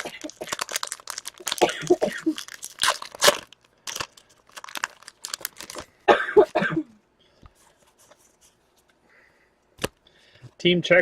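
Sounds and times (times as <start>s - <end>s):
cards rustling: 0.0s - 5.9s
person coughing: 1.5s - 2.4s, 6.1s - 7.0s.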